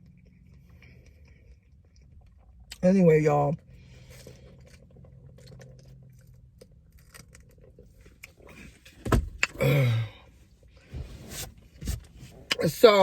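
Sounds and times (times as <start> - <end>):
person chewing food: 0.0 - 2.8, 3.7 - 8.8.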